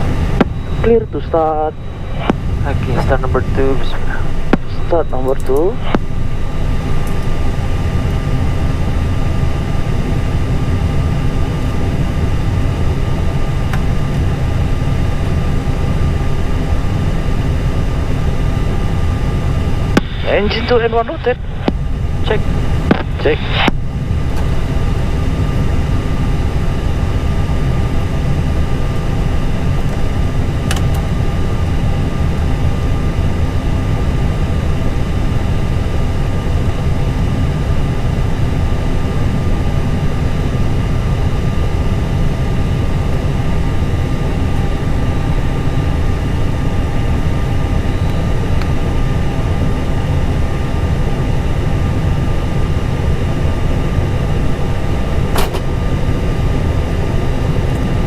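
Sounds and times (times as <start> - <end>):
jet engine starting rumble: 0.0 - 32.6
steady whine tones: 0.0 - 58.0.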